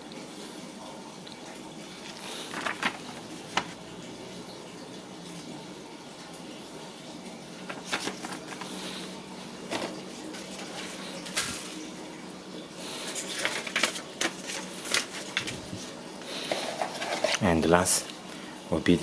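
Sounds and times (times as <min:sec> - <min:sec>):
hands handling packaging: 0:02.0 - 0:03.8, 0:07.6 - 0:09.0, 0:09.7 - 0:11.9, 0:12.9 - 0:17.5.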